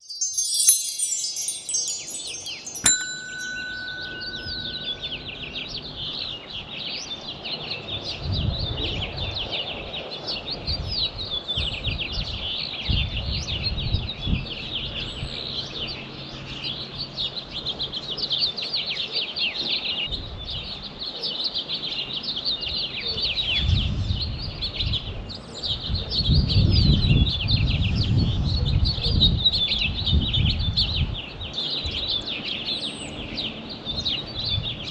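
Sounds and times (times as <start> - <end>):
held tone: 0.0 - 5.3
shimmering chime: 0.0 - 5.4.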